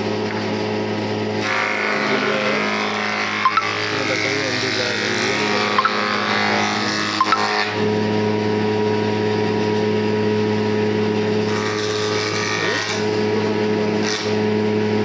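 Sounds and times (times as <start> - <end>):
electric wood planer running: 0.7 - 15.0
planer cutter hissing on wood: 1.4 - 7.9, 11.4 - 14.6.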